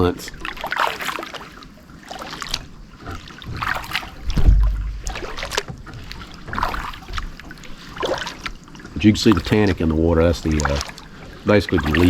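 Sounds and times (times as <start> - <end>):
paddle splashing in water: 0.0 - 12.0
low thump: 3.5 - 7.2.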